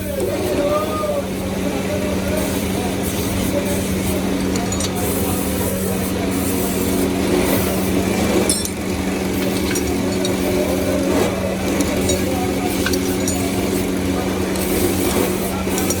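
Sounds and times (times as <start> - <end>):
machinery humming: 0.0 - 16.0
short metallic clinks: 4.3 - 5.7, 8.3 - 10.9, 11.7 - 13.9.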